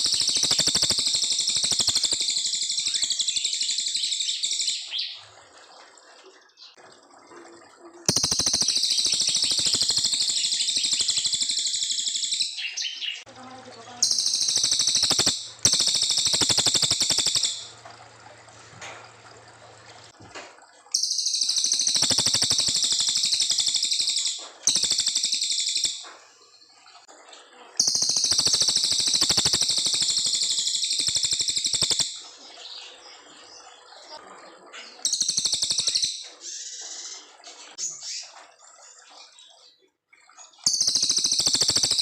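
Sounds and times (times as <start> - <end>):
songbird rapid high-pitched song: 0.0 - 5.2, 8.0 - 17.8, 20.9 - 26.2, 27.8 - 34.2, 34.8 - 39.8, 40.4 - 42.0.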